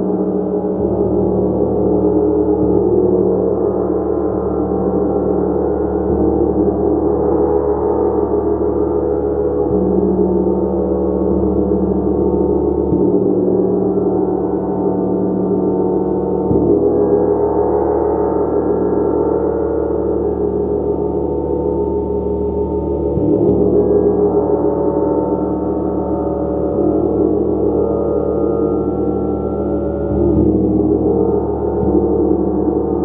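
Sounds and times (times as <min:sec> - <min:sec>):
gong resonating: 0:19.4 - 0:33.0.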